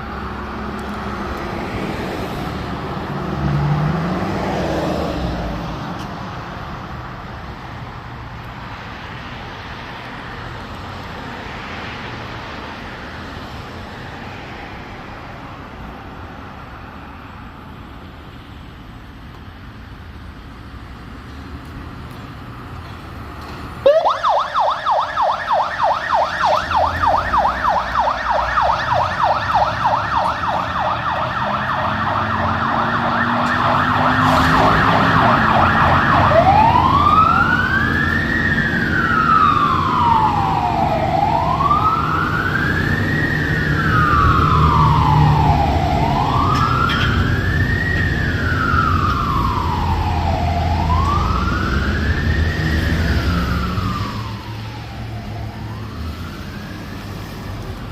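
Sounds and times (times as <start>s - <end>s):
emergency siren yelp and wail: 0.0s - 7.8s, 23.8s - 57.9s
vehicle engine and road noise: 0.0s - 57.9s.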